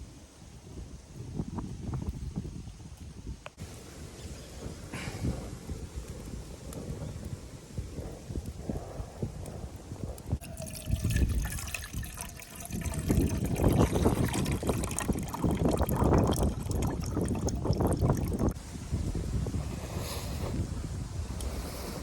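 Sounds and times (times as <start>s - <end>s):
water pouring into pot: 10.4s - 18.6s.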